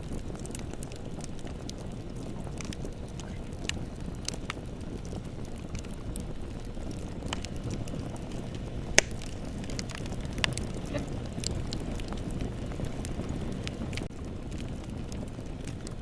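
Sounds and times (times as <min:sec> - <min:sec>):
bonfire flames rumbling: 0:00.0 - 0:16.0
burning wood crackling and popping: 0:00.0 - 0:16.0.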